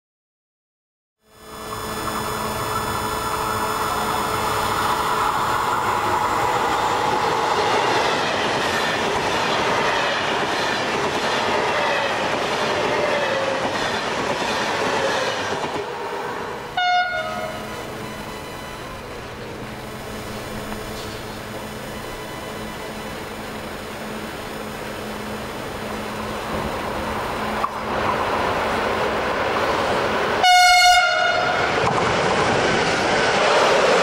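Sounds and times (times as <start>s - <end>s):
high-speed train passing: 1.2s - 34.0s
train horn tone: 16.5s - 25.3s, 30.4s - 31.8s.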